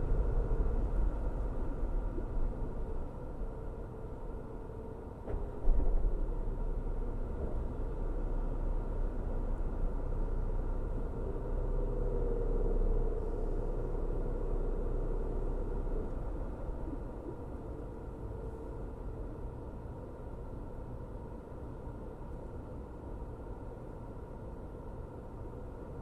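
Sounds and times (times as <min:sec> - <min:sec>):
car engine and tyres rumbling: 0:00.0 - 0:26.0
faint hum: 0:00.0 - 0:26.0.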